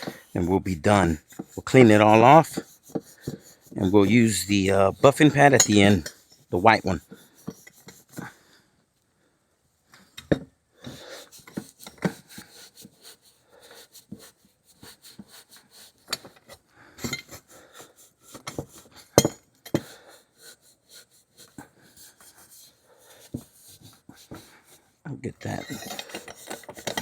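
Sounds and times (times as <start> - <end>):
abrasive pad scrubbing metal: 0.0 - 8.2.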